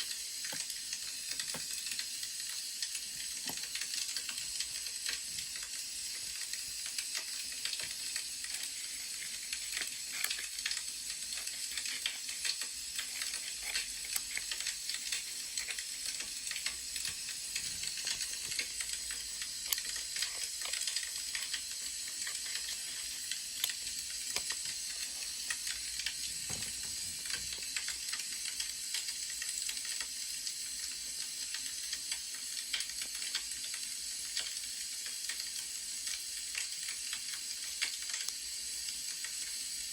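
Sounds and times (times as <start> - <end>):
wood fire crackling: 0.0 - 30.4.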